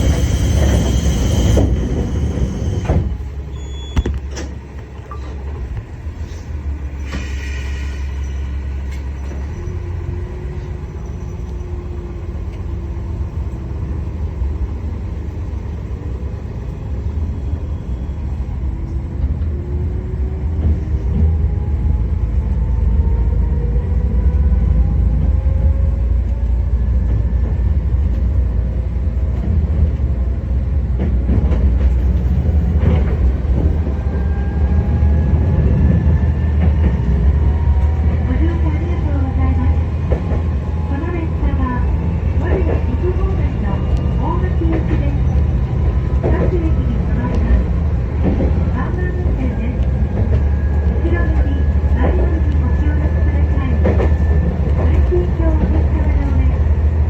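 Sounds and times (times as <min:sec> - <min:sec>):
diesel railcar engine rumble: 0:00.0 - 0:57.0.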